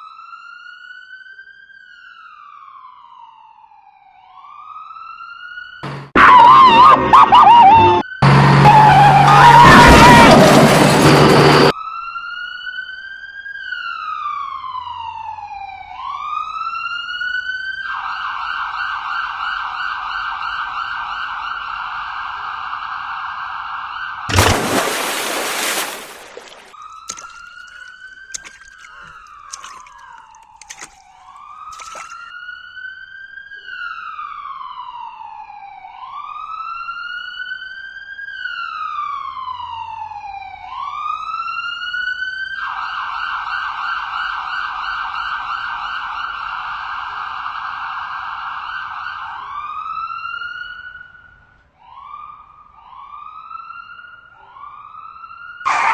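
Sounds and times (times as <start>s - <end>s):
electronic siren wailing: 5.5s - 10.5s, 55.6s - 55.9s.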